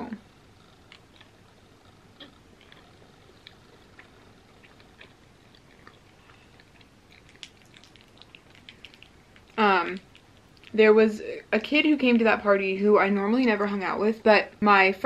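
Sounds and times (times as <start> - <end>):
chewing with soft mouth clicks: 0.8 - 1.6, 2.2 - 10.8.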